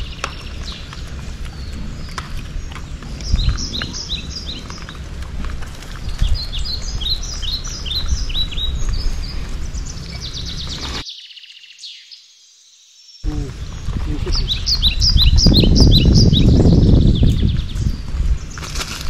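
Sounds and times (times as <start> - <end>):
low outdoor rumble: 0.0 - 11.0, 13.3 - 19.0
small birds chirping: 0.0 - 19.0.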